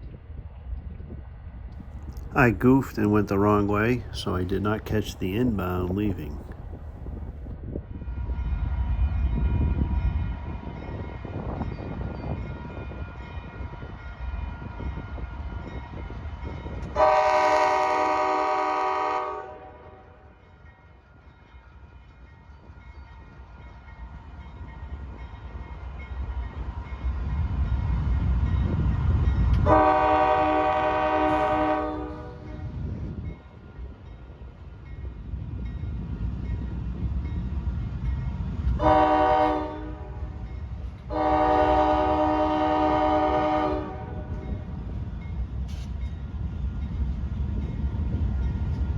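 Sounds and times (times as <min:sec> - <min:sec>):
diesel locomotives rumbling: 0:00.0 - 0:48.9
train horn blasts: 0:16.9 - 0:20.3, 0:29.6 - 0:32.7, 0:38.8 - 0:40.4, 0:41.1 - 0:44.5.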